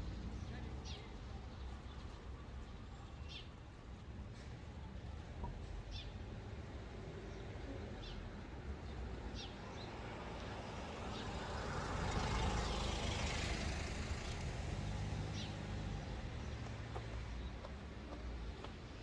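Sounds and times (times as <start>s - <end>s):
low road rumble: 9.9s - 19.0s
vehicle passing: 10.8s - 19.0s.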